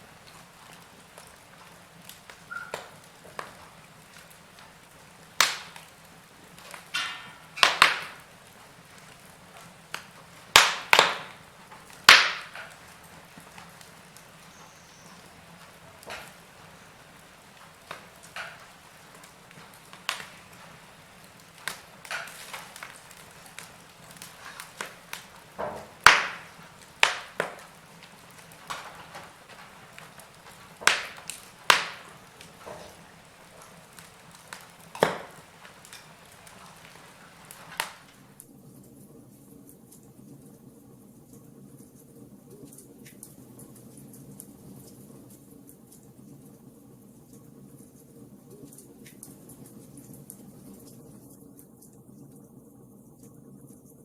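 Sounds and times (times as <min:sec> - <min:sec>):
low steady fire hiss: 0:00.0 - 0:54.0
wood fire crackling and popping: 0:00.0 - 0:54.0.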